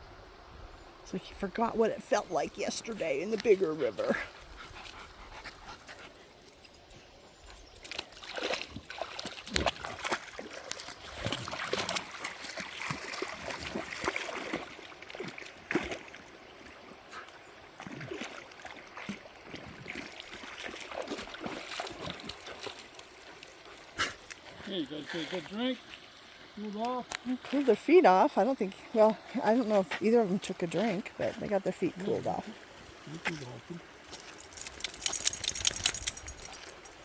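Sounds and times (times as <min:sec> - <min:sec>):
flowing stream: 0:00.0 - 0:37.0
dogs splashing in water: 0:07.6 - 0:33.0, 0:33.8 - 0:37.0.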